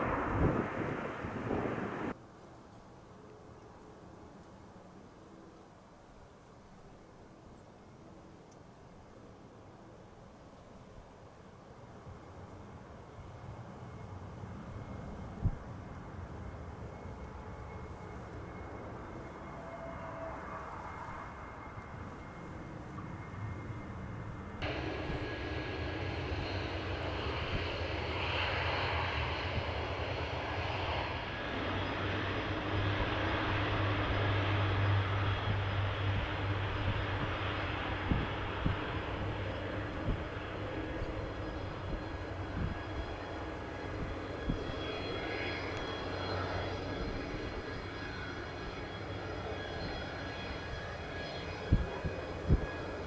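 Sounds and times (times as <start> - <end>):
airliner engines passing: 0.0 - 2.2, 9.3 - 53.0
wind buffeting microphone: 0.0 - 2.2, 23.2 - 53.0.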